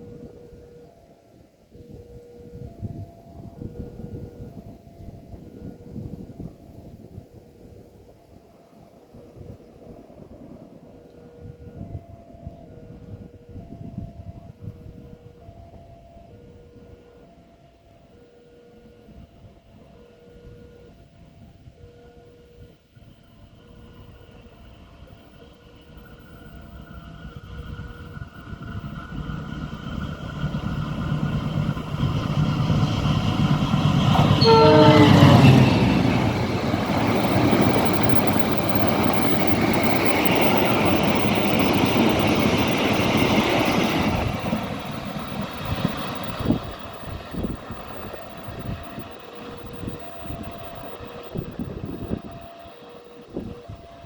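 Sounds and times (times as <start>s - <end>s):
train passing with rail noise: 0.0s - 54.0s
two-tone crossing alarm: 28.8s - 54.0s
train horn blast: 30.7s - 37.7s.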